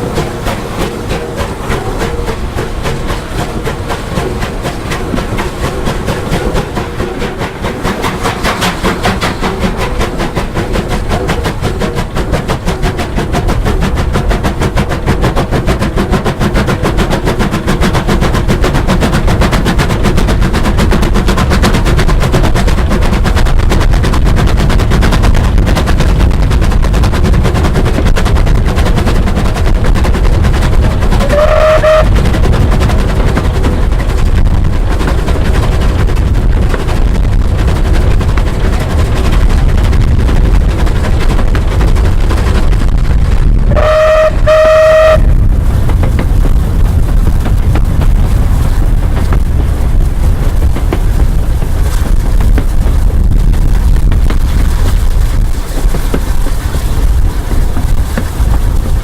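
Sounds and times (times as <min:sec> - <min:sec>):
steam locomotive exhaust beats: 0:00.0 - 0:59.0
short train whistle: 0:31.2 - 0:32.1, 0:43.7 - 0:45.3.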